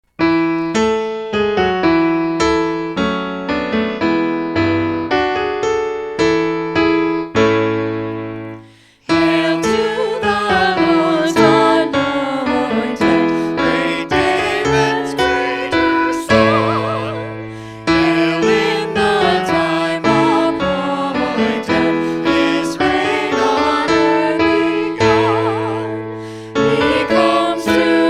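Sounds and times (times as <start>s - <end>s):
piano playing hymn chords: 0.1s - 28.0s
voices singing: 9.1s - 28.0s.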